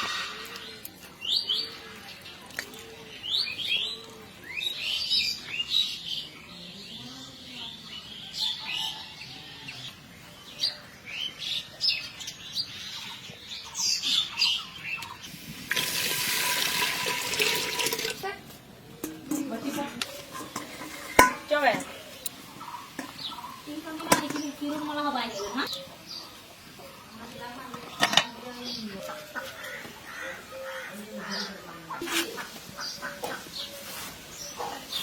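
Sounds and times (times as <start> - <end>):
birds chirping: 18.2 - 35.0.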